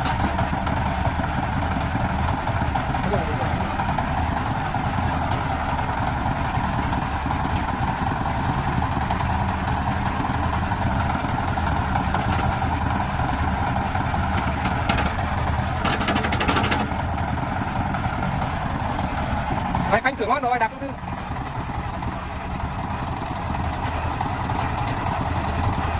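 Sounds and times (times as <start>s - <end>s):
diesel engine running: 0.0s - 25.9s
rapid rattling: 9.2s - 17.7s.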